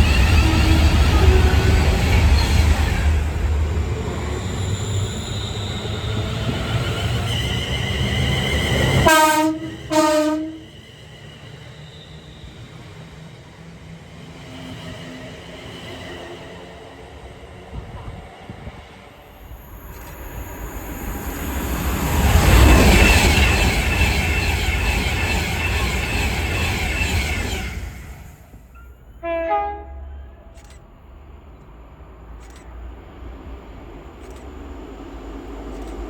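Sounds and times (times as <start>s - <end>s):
train toot: 0.0s - 12.8s, 19.9s - 31.3s
train passing rumble: 0.0s - 36.0s.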